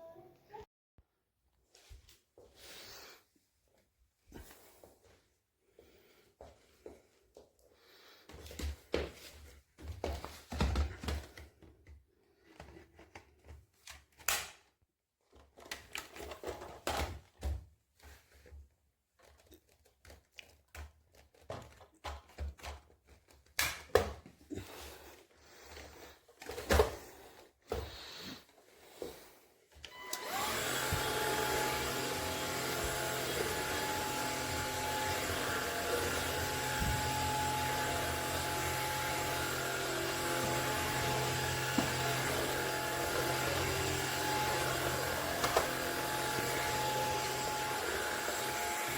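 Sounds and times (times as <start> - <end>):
stick vacuum motor whining: 29.8 - 48.9.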